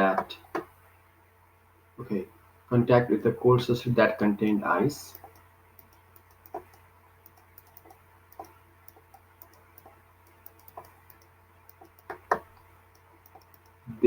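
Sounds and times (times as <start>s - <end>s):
faint low hum: 0.0s - 14.0s
light clicks and taps: 5.1s - 13.8s.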